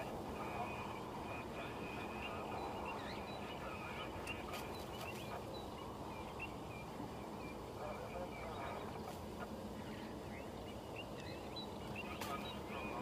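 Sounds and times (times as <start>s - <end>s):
bird chirps: 0.0s - 13.0s
low background noise: 0.0s - 13.0s.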